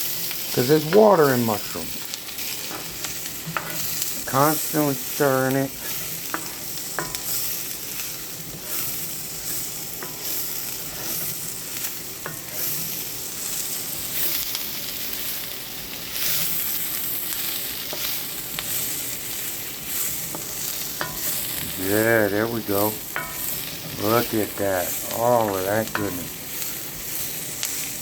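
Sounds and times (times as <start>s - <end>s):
food sizzling in a skillet: 0.0s - 28.0s
utensil clicking against pan: 5.8s - 7.4s.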